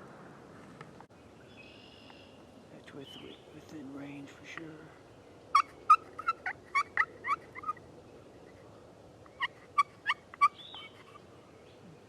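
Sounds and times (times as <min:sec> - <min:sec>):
turkey yelping: 0:05.5 - 0:07.8, 0:09.3 - 0:11.2.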